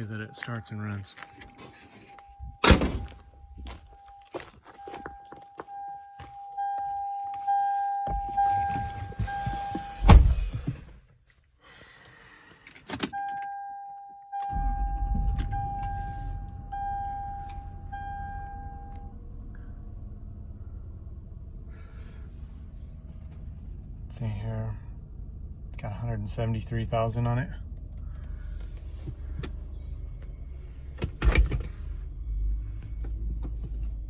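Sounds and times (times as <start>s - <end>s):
warning chime beeping: 0.0s - 2.7s, 3.4s - 9.8s, 13.2s - 19.2s
car engine starting and idling: 5.7s - 11.1s, 12.6s - 34.0s
loud clunk: 14.5s - 17.6s.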